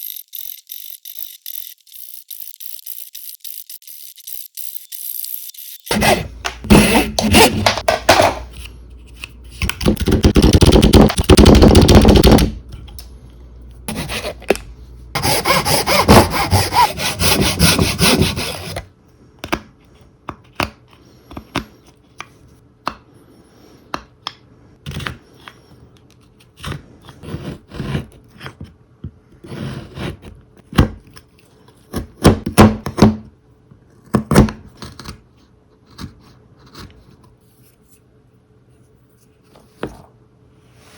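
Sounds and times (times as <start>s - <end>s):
wood being sawn: 5.9s - 7.8s, 13.9s - 14.5s, 15.2s - 18.8s.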